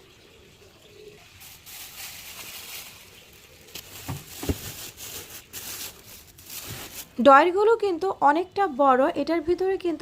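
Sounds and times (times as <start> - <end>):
food packets rustling: 1.3 - 7.2
soft knocks of containers: 3.7 - 5.0.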